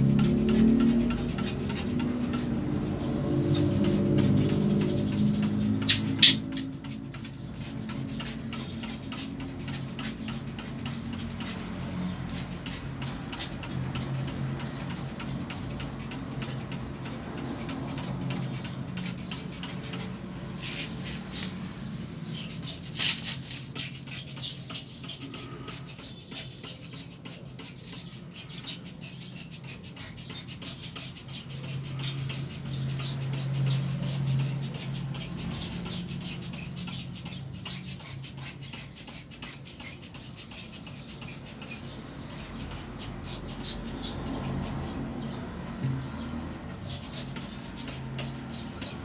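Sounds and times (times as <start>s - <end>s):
brush scrubbing: 20.6s - 21.6s.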